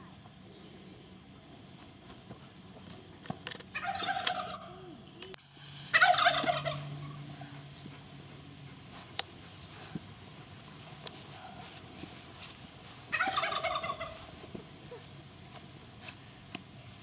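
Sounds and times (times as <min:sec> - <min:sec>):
large fowl rattling call: 0:03.7 - 0:04.7, 0:05.8 - 0:07.6, 0:13.1 - 0:14.3.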